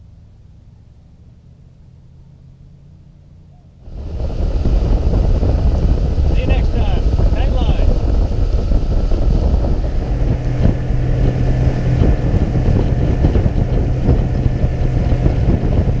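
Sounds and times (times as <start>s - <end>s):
boat motor drone: 0.0s - 16.0s
wind buffeting microphone: 3.8s - 16.0s.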